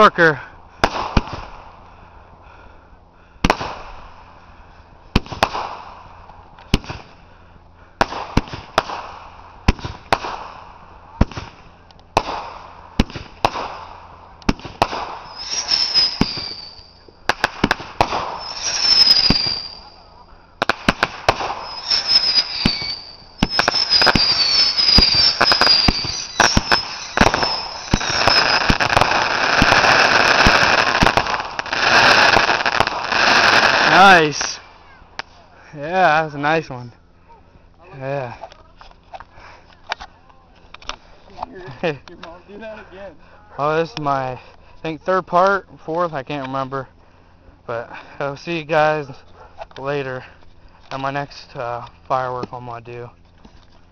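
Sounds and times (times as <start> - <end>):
rapid fireworks crackling: 0.8 - 1.8, 3.4 - 7.3, 8.0 - 35.4
whistling firework shots: 5.1 - 5.9, 8.0 - 34.7
fireworks bangs: 5.1 - 7.1, 8.0 - 20.0, 20.6 - 34.7.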